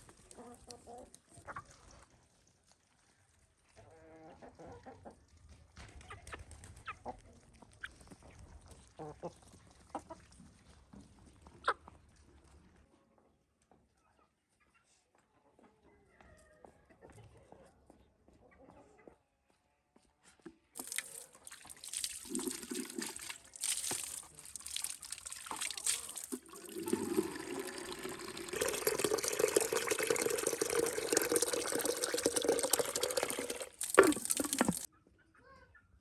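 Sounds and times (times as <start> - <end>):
water pouring and splashing: 20.8 - 34.9.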